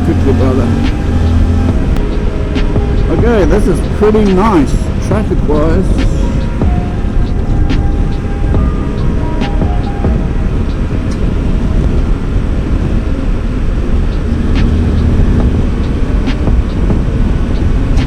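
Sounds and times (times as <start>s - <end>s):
motorcycle engine: 0.0s - 18.0s
wind and road rush: 0.0s - 18.0s.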